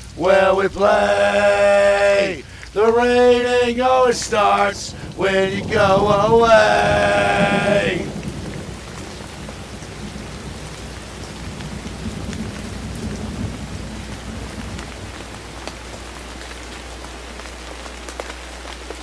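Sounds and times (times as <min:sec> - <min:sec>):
steady rain falling: 0:00.0 - 0:19.0
low rumble: 0:02.4 - 0:15.6.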